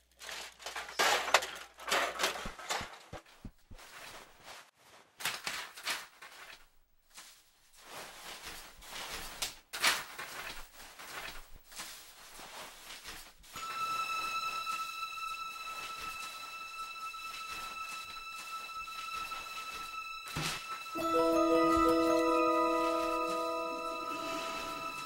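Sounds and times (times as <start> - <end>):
papers rustling on carpet: 0.0 - 13.7.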